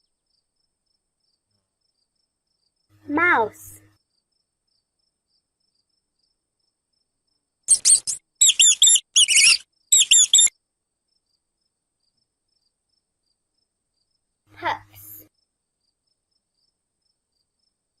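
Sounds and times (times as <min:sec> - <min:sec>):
mouse squeaking: 0:07.7 - 0:10.5.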